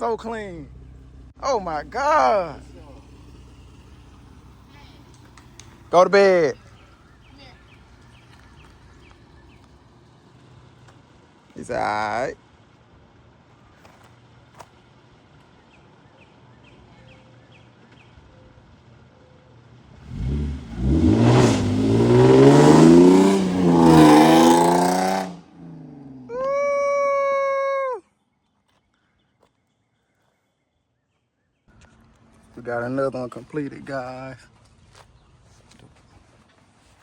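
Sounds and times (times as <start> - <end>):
car engine revving hard: 20.0 - 26.3.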